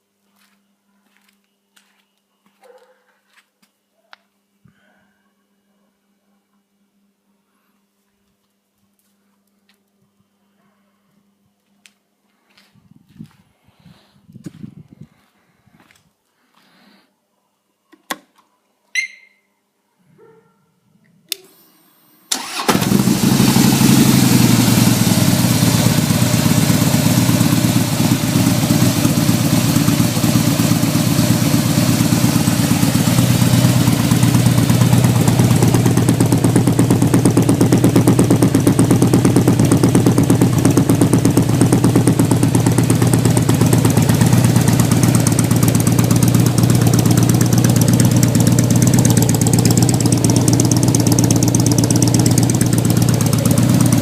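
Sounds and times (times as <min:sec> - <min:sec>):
motorcycle engine starting and idling: 0:22.3 - 0:54.0.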